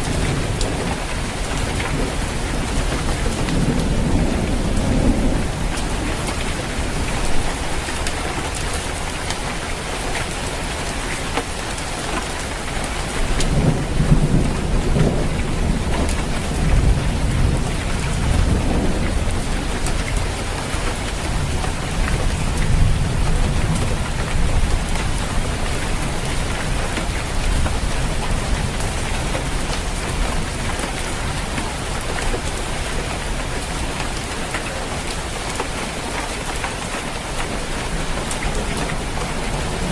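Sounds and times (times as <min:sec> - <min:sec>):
rolling thunder: 0:00.0 - 0:09.1, 0:13.1 - 0:31.4
rain on a roof: 0:00.0 - 0:39.9.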